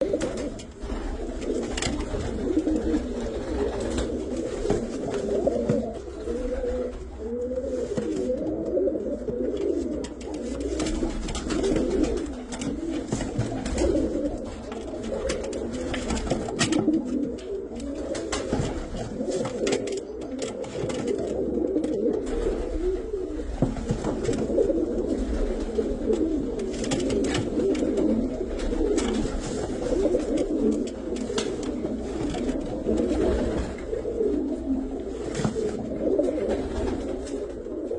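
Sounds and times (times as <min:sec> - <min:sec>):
pigeons cooing: 0:00.0 - 0:37.9.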